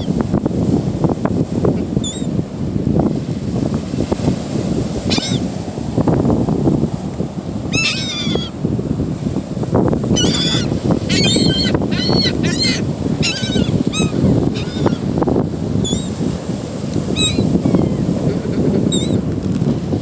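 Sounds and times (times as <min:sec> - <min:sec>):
surf: 0:00.0 - 0:20.0
wind: 0:00.0 - 0:20.0
gulls calling: 0:05.1 - 0:05.5, 0:07.7 - 0:08.6, 0:10.0 - 0:16.2, 0:17.0 - 0:19.2.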